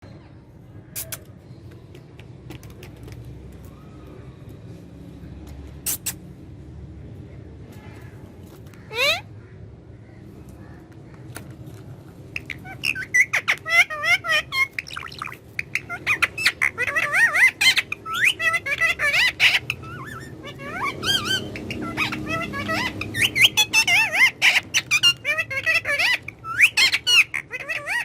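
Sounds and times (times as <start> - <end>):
parrot chattering and squawking: 5.8 - 6.3, 8.8 - 9.4, 12.2 - 28.0.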